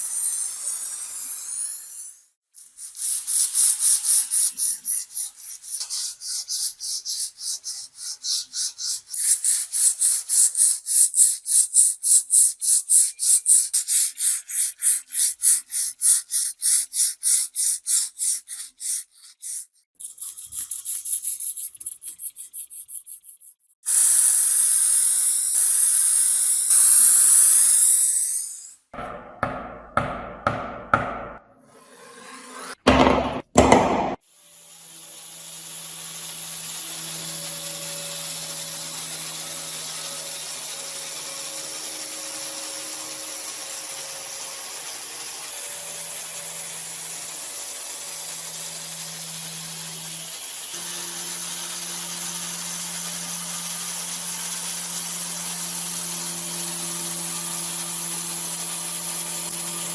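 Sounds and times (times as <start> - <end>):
abrasive rubbing on knife: 2.6 - 23.7.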